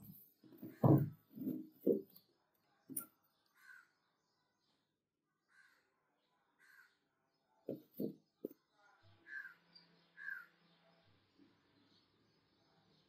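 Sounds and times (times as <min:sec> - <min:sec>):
soft knocks: 0:00.5 - 0:02.2.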